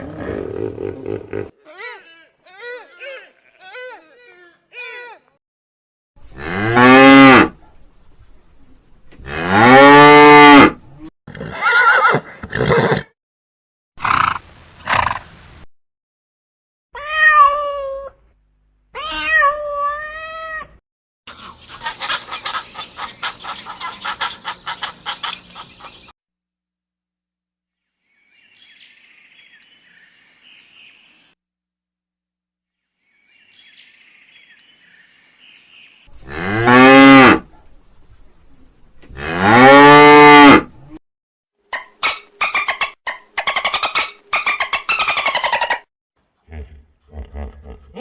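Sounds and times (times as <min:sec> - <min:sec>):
high wavering cat-like meows: 0:17.0 - 0:18.2, 0:19.0 - 0:20.8
cow mooing: 0:39.1 - 0:40.7.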